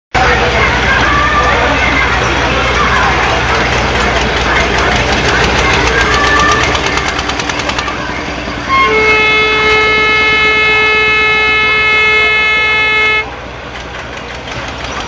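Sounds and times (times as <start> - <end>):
fairground bustle with voices: 0.1 - 15.0
fast clicking rattle: 3.5 - 8.0, 13.7 - 15.0
loud steady horn: 8.6 - 13.4.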